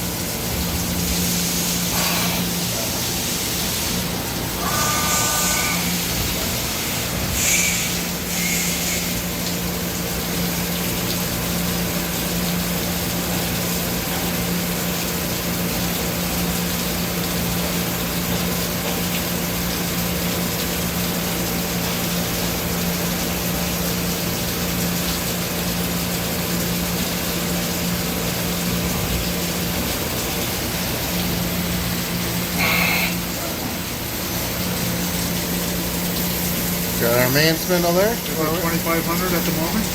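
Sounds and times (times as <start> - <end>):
milling machine humming: 0.0 - 14.5, 28.6 - 39.9.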